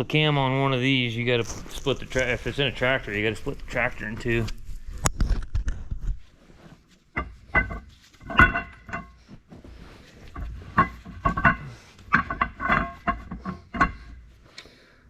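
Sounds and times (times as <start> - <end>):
tools clanking against engine: 7.2 - 9.2, 10.3 - 14.6.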